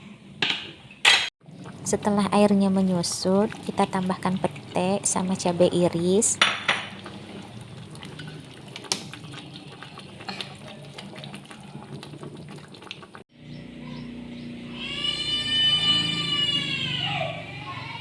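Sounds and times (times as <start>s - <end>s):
curry simmering and bubbling: 1.4s - 13.2s.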